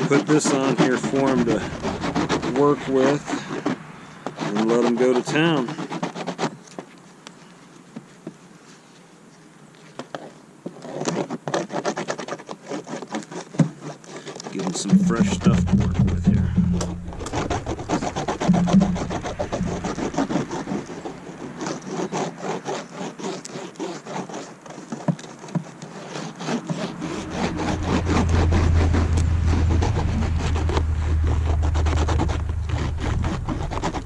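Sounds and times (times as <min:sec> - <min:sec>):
wax rubbing and scraping: 0:00.0 - 0:09.0, 0:09.8 - 0:34.0
low steady rumble: 0:01.2 - 0:03.3, 0:14.8 - 0:21.4, 0:26.7 - 0:34.0.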